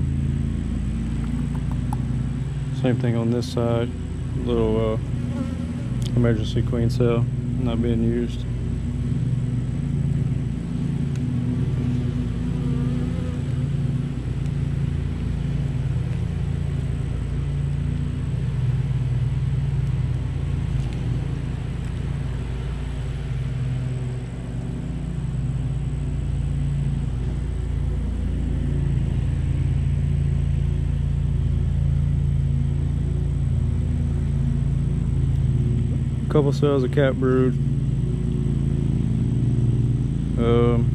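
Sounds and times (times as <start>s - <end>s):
honeybees buzzing: 0.6s - 30.6s.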